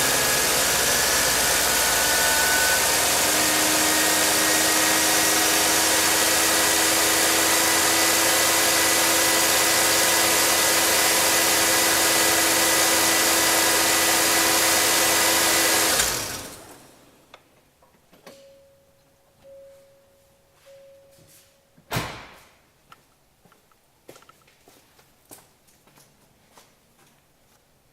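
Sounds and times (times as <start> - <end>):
faint steady beep-like tone: 18.3 - 21.8.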